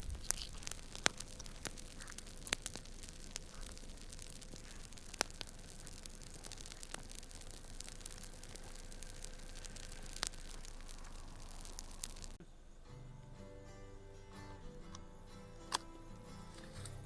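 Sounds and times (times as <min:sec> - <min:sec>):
sharp clicks and crackles: 0:00.0 - 0:12.4
steady hiss: 0:00.0 - 0:17.0.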